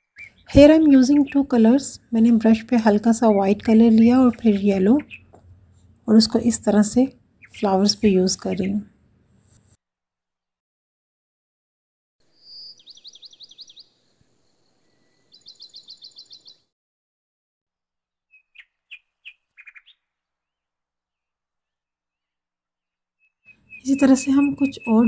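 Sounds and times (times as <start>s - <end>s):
songbird trilling: 0.0s - 5.4s, 12.4s - 13.9s, 15.3s - 16.6s, 18.4s - 20.1s, 23.5s - 25.0s
short bird chirps: 12.3s - 16.7s, 18.3s - 20.1s.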